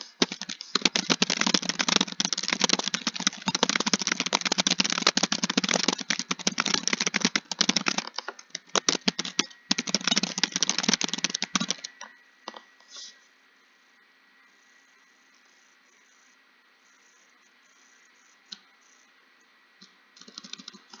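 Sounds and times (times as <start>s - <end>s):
fast typing on keyboard: 0.0s - 11.9s, 20.2s - 21.0s.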